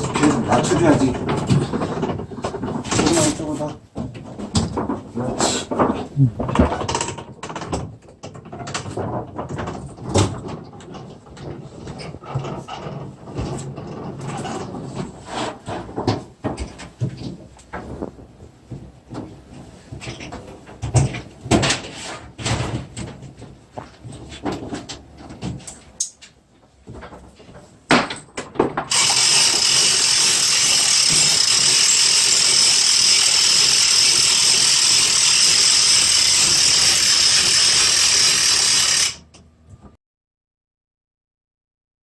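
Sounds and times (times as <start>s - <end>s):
loud mechanical whir: 28.9s - 39.2s
ratchet-like clicks: 28.9s - 39.2s.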